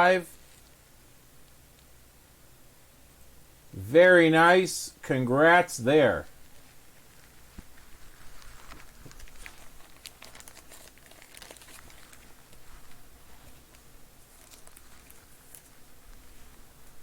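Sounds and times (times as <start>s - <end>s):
plastic packaging crinkling: 6.4s - 16.5s.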